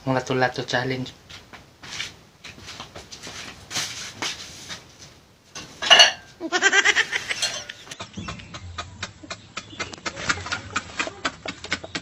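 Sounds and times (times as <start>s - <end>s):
cookware clinking: 5.6s - 6.3s, 7.3s - 8.0s
loud metallic clang: 5.6s - 6.3s.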